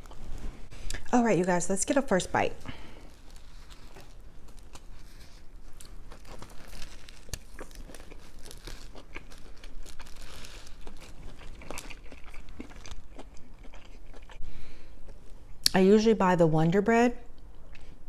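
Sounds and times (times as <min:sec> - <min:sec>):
chewing crunches: 0:00.0 - 0:14.4.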